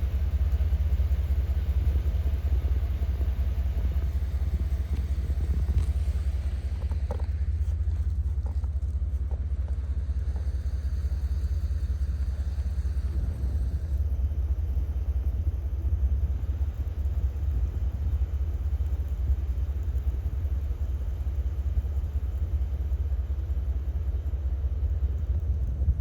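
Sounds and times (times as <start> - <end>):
wind buffeting microphone: 3.6 - 14.9.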